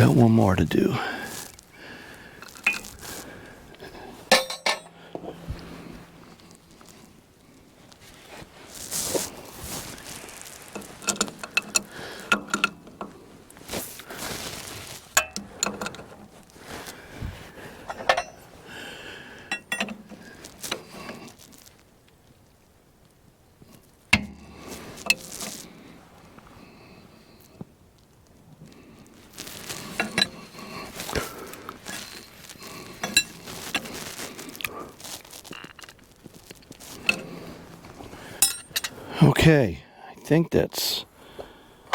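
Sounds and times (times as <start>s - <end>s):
wrench clinking on metal: 4.3s - 5.0s, 38.4s - 39.0s.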